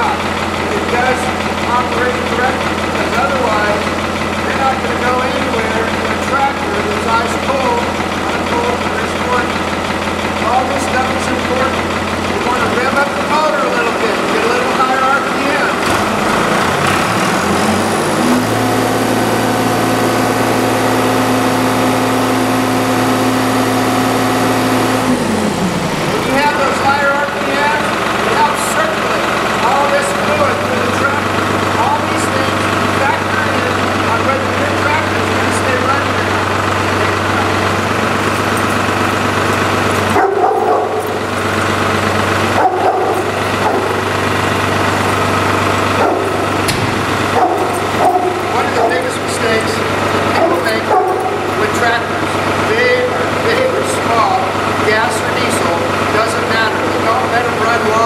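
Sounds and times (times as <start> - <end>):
tractor engine revving: 0.0 - 58.0
dog barking: 40.1 - 41.2, 42.6 - 44.0, 46.0 - 46.4, 47.3 - 49.0, 50.4 - 51.5.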